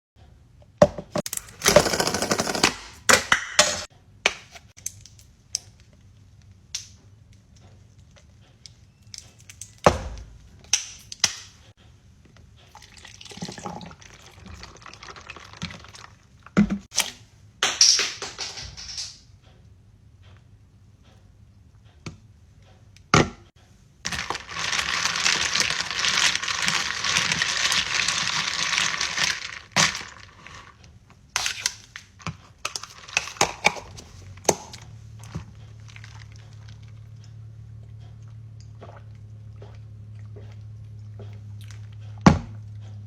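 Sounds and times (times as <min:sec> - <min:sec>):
cups and equipment clattering: 0:00.8 - 0:03.9, 0:12.6 - 0:16.9, 0:31.4 - 0:37.0.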